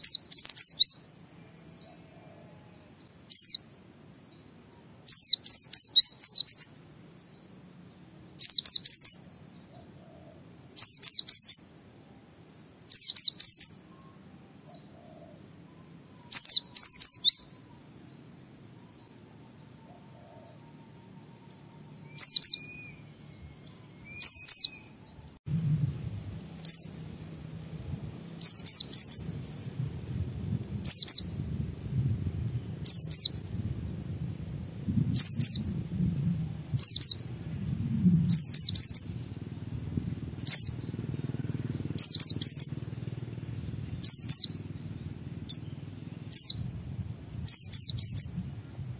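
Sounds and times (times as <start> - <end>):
white-eye bird singing: 0.0 - 48.9
low background rumble: 11.8 - 48.9.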